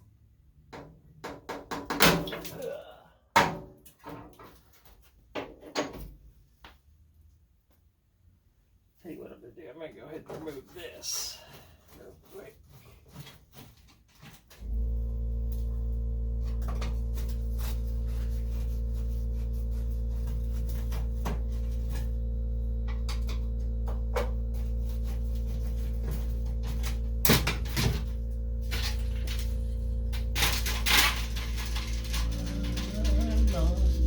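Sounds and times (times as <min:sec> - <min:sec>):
electric machine hum: 0:14.6 - 0:34.0.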